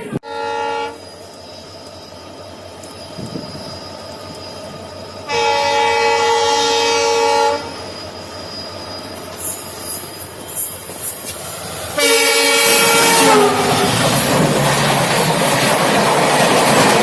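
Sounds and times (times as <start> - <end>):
locomotive horn blast: 0.0 - 1.0, 5.3 - 7.7, 12.0 - 13.9
low rumble of train: 0.0 - 17.0
train wheel clatter: 7.7 - 17.0.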